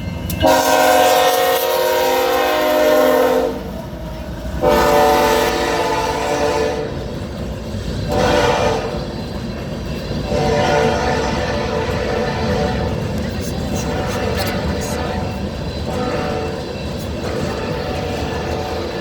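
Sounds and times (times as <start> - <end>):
low rumble of rolling train: 0.0 - 19.0
locomotive air horn blasts: 0.4 - 3.7, 4.6 - 7.0, 8.1 - 9.0, 10.3 - 16.6, 17.2 - 19.0.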